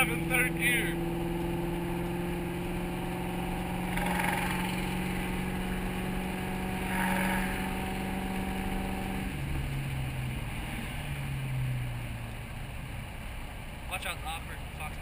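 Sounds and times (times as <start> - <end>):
car engine droning from inside: 0.0 - 15.0.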